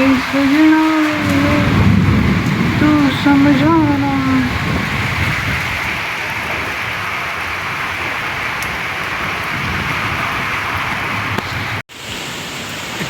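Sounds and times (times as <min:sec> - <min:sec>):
heavy rain in strong wind: 0:00.0 - 0:13.0.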